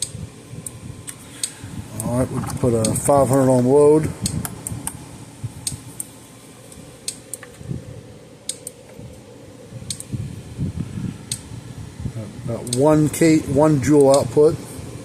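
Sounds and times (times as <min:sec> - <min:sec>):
electric fence energizer clicking: 0:00.0 - 0:07.8, 0:08.4 - 0:11.6, 0:12.4 - 0:15.0.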